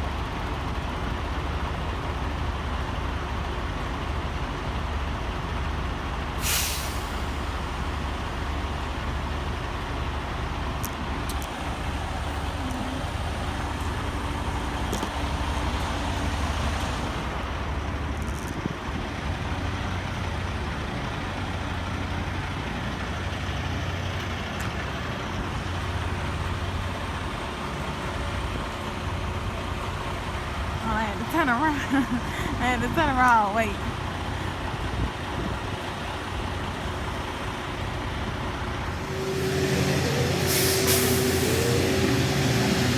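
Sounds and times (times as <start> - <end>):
road noise: 0.0 - 42.9
truck engine running: 0.0 - 42.9
air brakes hiss: 6.4 - 8.0, 38.9 - 42.9.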